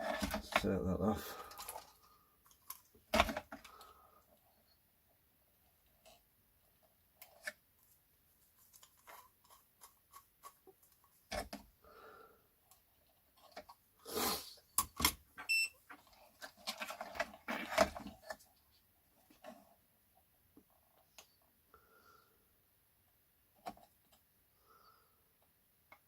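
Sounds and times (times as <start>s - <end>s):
plastic parts and tools rattling: 0.0s - 3.9s, 14.8s - 18.6s.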